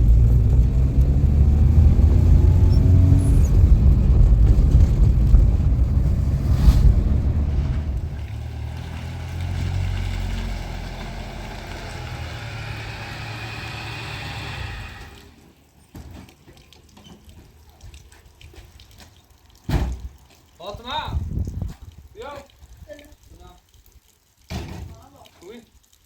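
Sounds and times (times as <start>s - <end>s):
car engine rumbling: 0.0s - 15.3s.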